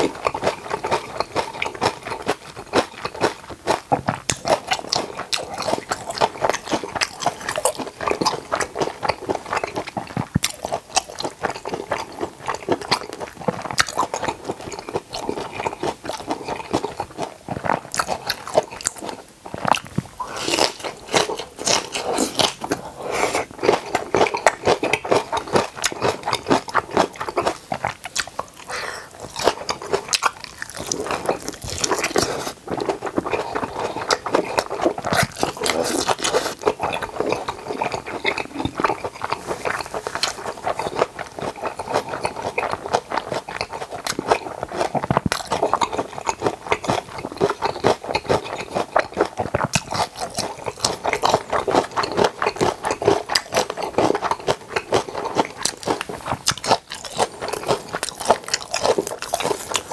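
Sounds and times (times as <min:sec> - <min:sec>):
crunching and wet chewing: 0:00.0 - 0:59.9.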